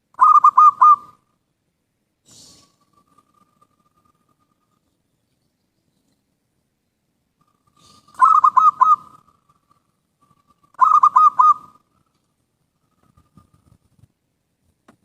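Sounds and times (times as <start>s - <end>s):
dove cooing: 0.2s - 1.2s, 7.5s - 12.1s.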